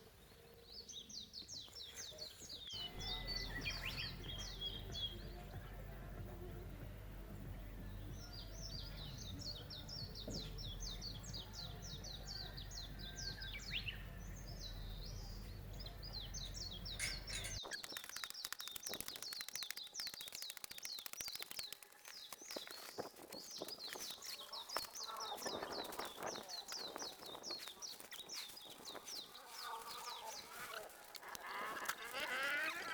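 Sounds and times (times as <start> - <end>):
songbirds chirping: 0.0 - 32.9
short clicks or rustles: 17.0 - 25.4.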